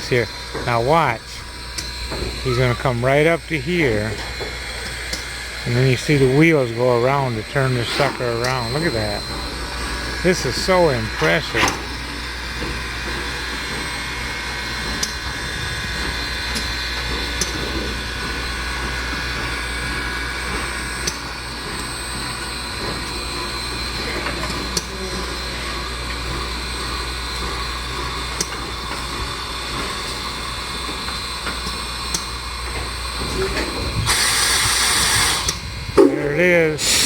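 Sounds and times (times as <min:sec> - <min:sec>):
steam locomotive hissing: 0:00.0 - 0:21.0, 0:34.0 - 0:37.0.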